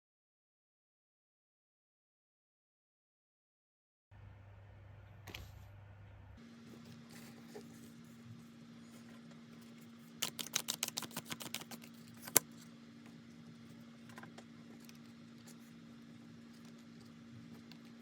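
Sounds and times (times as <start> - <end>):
low hum: 4.2 - 10.2
cards clicking: 10.2 - 12.5.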